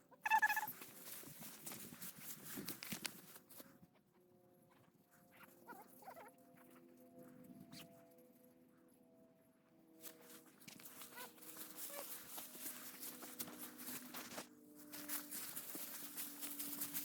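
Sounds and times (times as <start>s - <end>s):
footsteps through dry grass: 0.3s - 3.7s, 10.0s - 17.0s.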